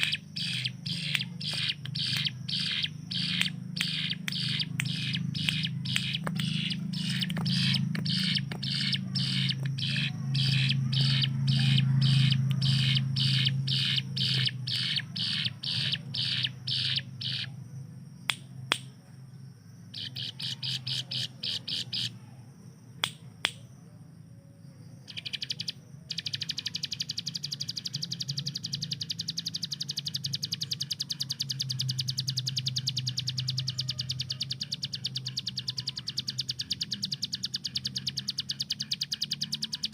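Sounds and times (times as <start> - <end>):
bird rattling trill: 0.0 - 17.5, 25.1 - 39.9
bird singing sharp high notes: 0.0 - 17.5
low steady hum: 0.0 - 39.9.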